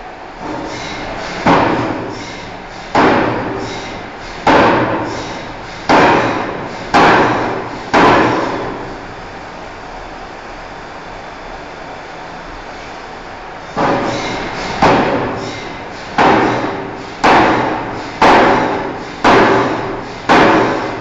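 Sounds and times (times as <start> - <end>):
forging hammer striking hot steel: 0.4 - 8.8, 13.8 - 21.0.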